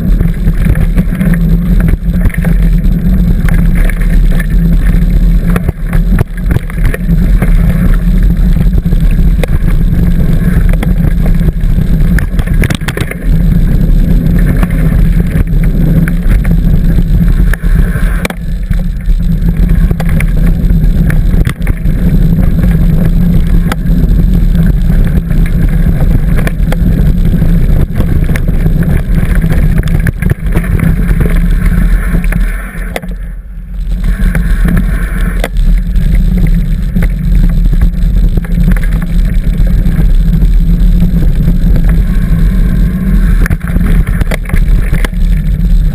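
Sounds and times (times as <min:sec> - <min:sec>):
mountain bike rumbling and rattling: 0:00.0 - 0:45.9
wind buffeting microphone: 0:00.0 - 0:45.9
small clicks and knocks: 0:12.1 - 0:13.2.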